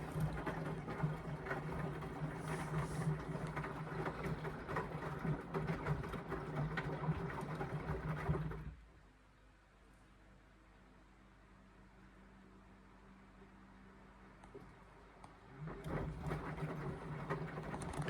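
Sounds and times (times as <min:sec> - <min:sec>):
washing machine motor hum: 0:00.0 - 0:08.8, 0:15.4 - 0:18.0.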